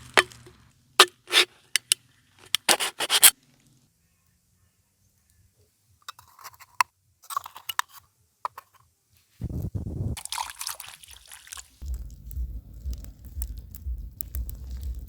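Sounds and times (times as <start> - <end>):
crackling rustling handling noise: 0.0 - 3.8
eggshells tapped and cracked: 12.3 - 15.0.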